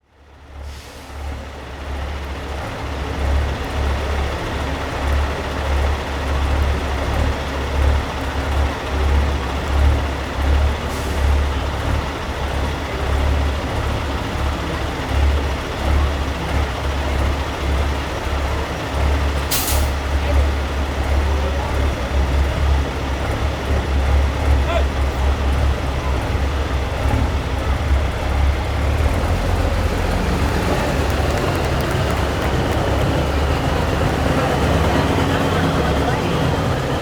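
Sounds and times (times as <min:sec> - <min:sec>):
diesel truck engines rumbling: 0:00.0 - 0:37.0
air brake hiss: 0:00.6 - 0:01.3, 0:19.5 - 0:20.0.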